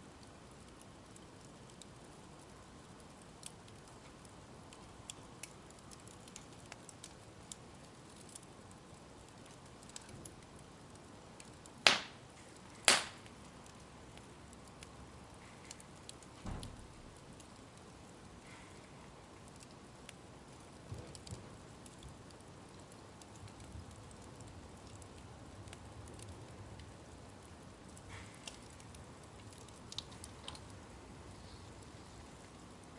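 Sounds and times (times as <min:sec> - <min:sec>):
bonfire crackling: 0:00.0 - 0:32.9
sharp loud pops: 0:11.8 - 0:12.2, 0:12.9 - 0:13.2
low dull thump: 0:16.4 - 0:16.9.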